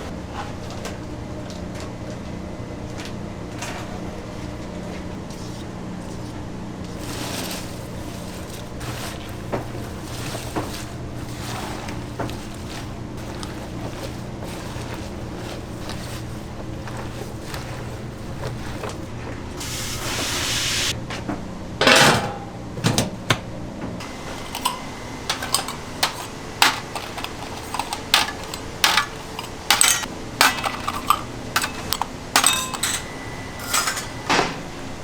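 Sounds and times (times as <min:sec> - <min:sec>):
metal pans and utensils clinking: 0:06.9 - 0:19.8, 0:21.8 - 0:23.4, 0:24.0 - 0:34.7.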